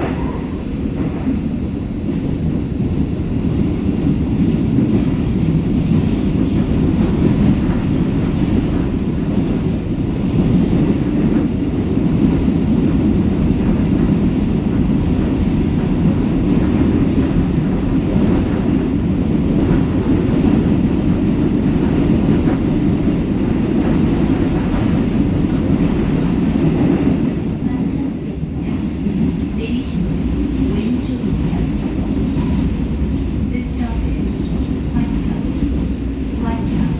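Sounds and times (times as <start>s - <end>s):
train wheels rumbling on rail: 0.0s - 36.9s.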